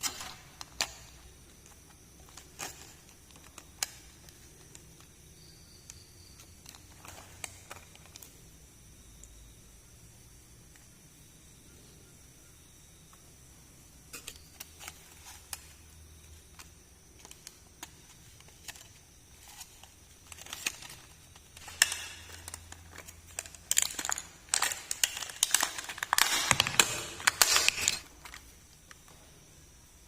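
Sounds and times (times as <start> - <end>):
toy packaging crinkling: 16.5 - 28.5.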